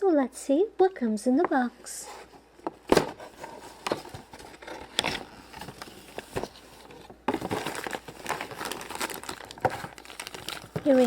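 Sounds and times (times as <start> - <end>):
plastic packaging rustling: 2.7 - 11.0.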